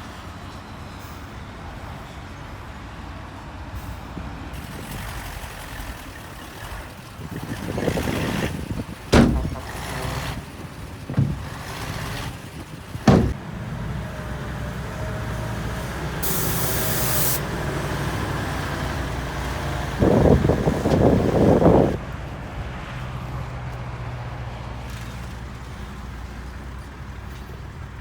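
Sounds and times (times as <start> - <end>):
diesel engine running: 4.6 - 24.4
loud metal clanks: 9.1 - 13.4
knock: 9.2 - 9.8, 13.1 - 13.4
air releasing hiss: 16.2 - 17.4.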